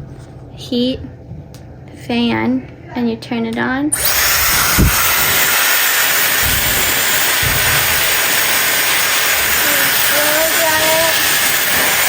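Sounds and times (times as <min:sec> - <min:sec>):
hair dryer blowing air: 0:04.0 - 0:12.0
thin high whine: 0:04.0 - 0:12.0.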